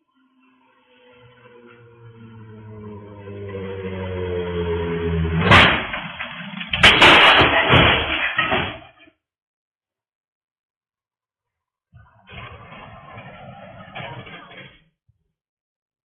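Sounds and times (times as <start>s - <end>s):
motorcycle engine approaching: 0.0s - 6.5s
motorcycle crash: 1.4s - 9.1s, 12.3s - 14.9s
crash with clattering: 5.3s - 9.0s.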